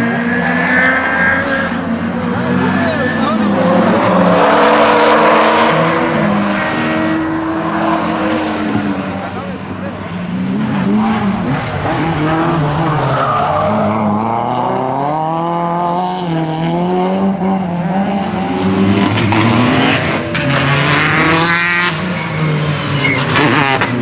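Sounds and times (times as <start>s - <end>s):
tyres skidding and squealing: 0.0s - 15.6s, 18.5s - 24.0s
car engine revving: 0.0s - 24.0s.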